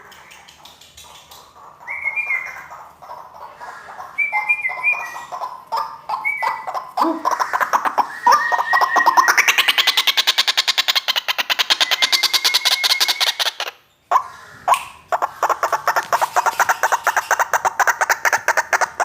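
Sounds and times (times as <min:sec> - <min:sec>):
waterhen clicking call: 0:04.0 - 0:19.0.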